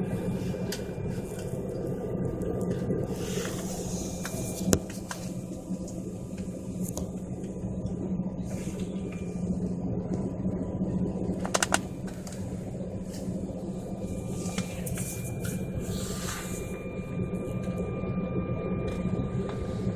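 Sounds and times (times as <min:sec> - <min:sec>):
airliner cabin engine drone: 0:00.0 - 0:19.9
clicks: 0:11.4 - 0:12.4.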